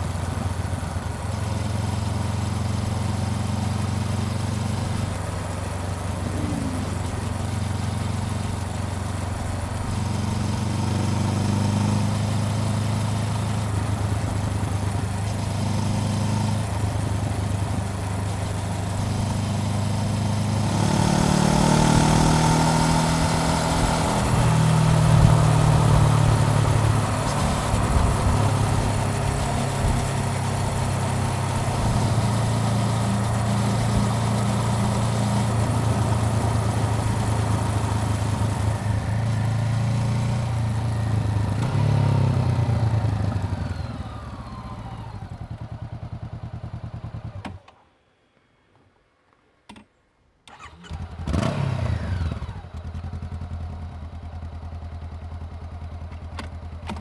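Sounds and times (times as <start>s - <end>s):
motorcycle engine revving: 0.0s - 47.6s, 50.5s - 55.9s
rushing wind: 20.7s - 34.4s.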